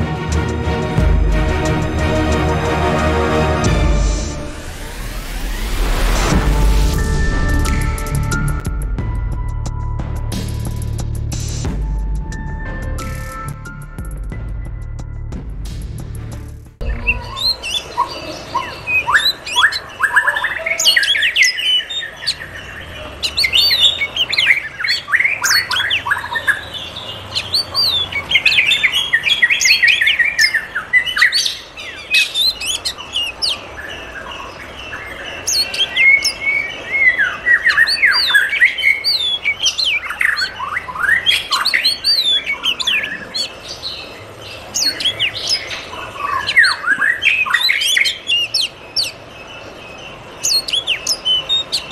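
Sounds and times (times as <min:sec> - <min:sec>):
flock of birds chirping: 0:16.8 - 0:51.9.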